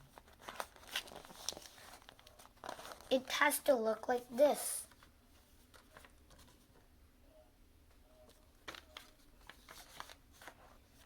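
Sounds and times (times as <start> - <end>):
folded paper rustling: 0.0 - 4.2, 8.3 - 11.0.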